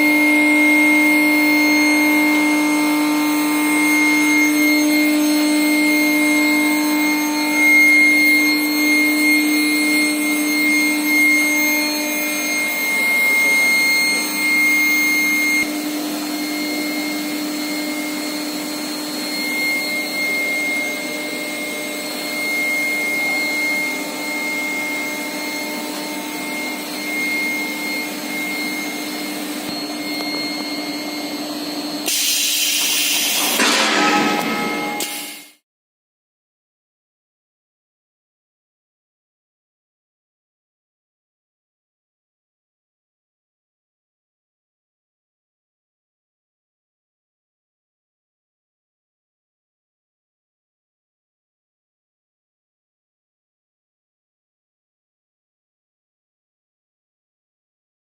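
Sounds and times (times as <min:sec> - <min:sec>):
machine noise: 0:05.7 - 0:35.6
electrical hum and high whine: 0:20.0 - 0:32.1.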